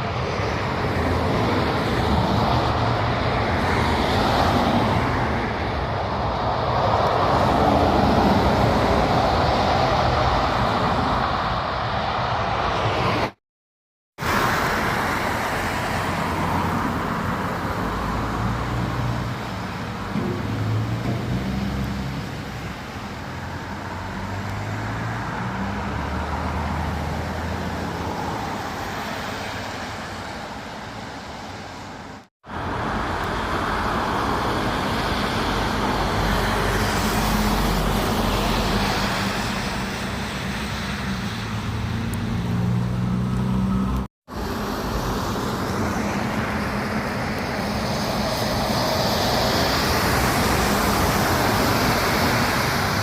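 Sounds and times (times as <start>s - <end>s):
tyre and traffic noise: 0.0s - 13.4s, 14.2s - 53.0s
truck engines running: 14.2s - 53.0s.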